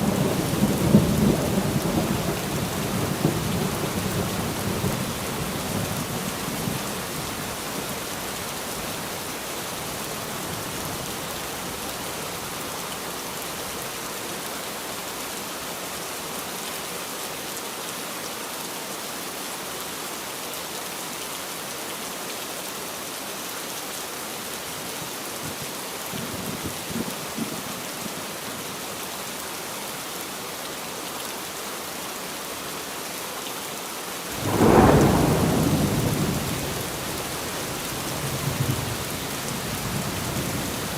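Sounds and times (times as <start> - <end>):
rain falling: 0.0 - 40.9
thunder rumbling: 34.4 - 40.9.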